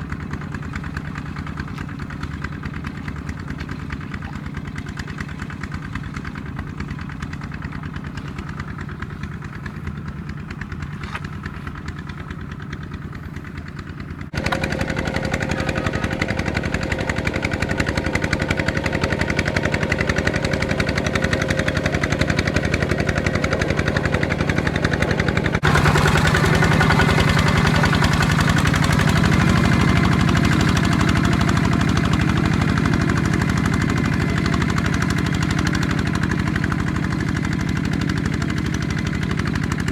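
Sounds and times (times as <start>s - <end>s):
tractor engine knocking: 0.0s - 39.9s.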